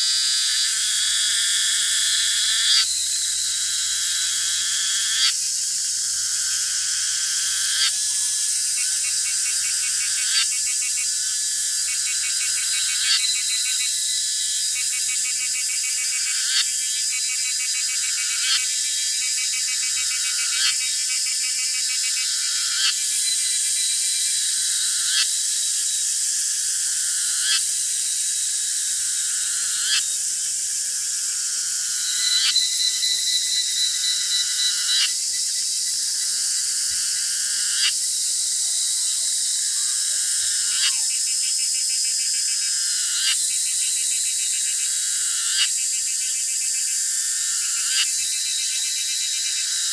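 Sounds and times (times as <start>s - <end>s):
high-pitched insect shrill: 0.0s - 25.9s, 26.7s - 49.9s
sharp insect call: 0.0s - 49.9s
rapid pulsed trills: 30.4s - 36.9s.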